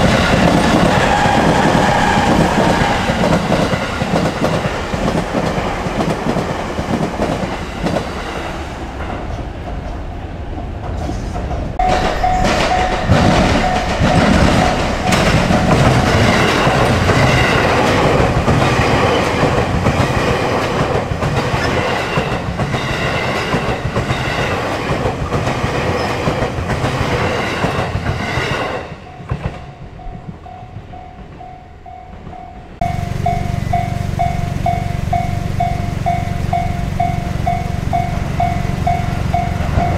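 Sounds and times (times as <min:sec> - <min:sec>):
train wheels clattering over rail joints: 0:00.0 - 0:10.1, 0:10.8 - 0:29.6
repeating ringing tone: 0:11.8 - 0:17.6, 0:29.2 - 0:39.9
steady sound: 0:11.8 - 0:18.6, 0:29.9 - 0:39.9.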